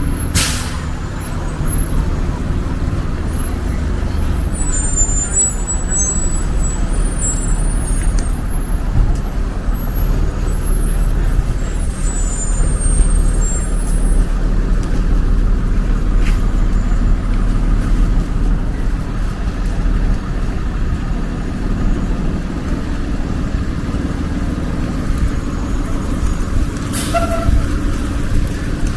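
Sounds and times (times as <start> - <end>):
road traffic rumble: 0.0 - 28.9.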